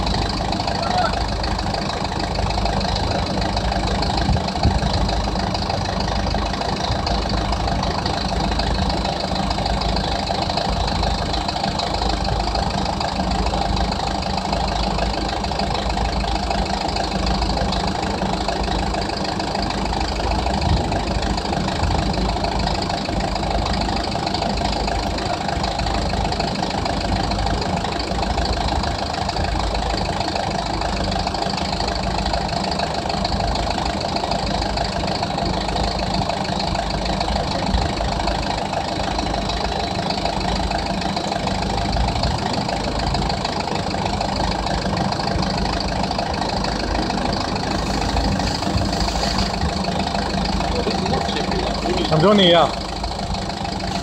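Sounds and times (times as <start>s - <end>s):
vehicle engine idling: 0.0s - 54.0s.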